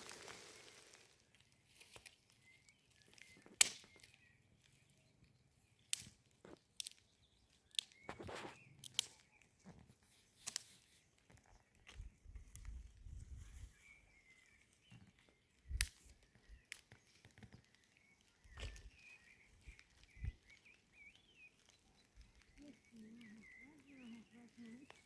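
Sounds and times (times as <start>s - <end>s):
steady hiss: 0.0s - 1.2s
sharp clicks and snaps: 2.9s - 4.8s, 5.8s - 12.8s, 14.9s - 25.0s
faint bird-like chirps: 11.4s - 25.0s.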